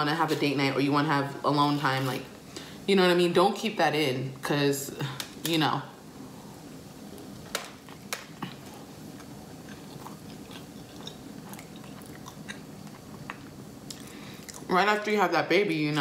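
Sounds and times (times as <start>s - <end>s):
person chewing wetly: 7.8s - 14.7s.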